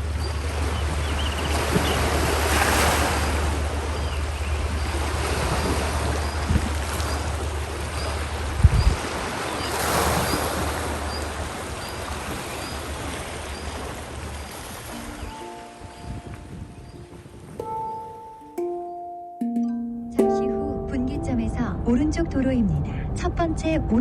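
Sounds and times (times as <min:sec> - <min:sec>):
wind rumbling on microphone: 0:00.0 - 0:17.7
sea waves washing: 0:00.0 - 0:18.8
soft handpan music: 0:14.9 - 0:22.8.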